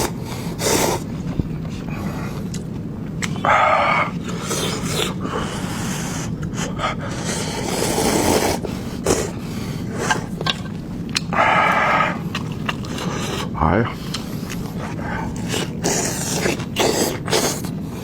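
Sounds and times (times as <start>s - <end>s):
chewing and wet mouth clicks: 2.4s - 3.4s, 10.0s - 17.8s.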